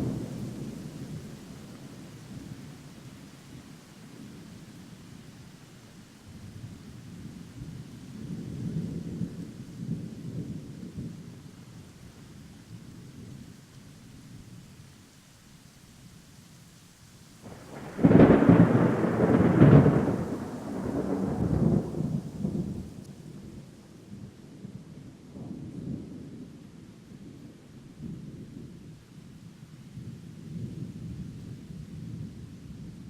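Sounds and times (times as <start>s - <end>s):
rain: 0.0s - 33.0s
thunder rumbling and cracking: 17.4s - 23.6s.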